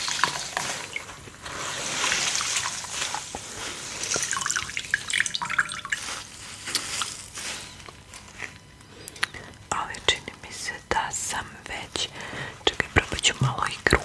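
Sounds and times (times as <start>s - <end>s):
sponge rinsed in water: 0.0s - 6.2s
water dripping: 0.0s - 6.2s.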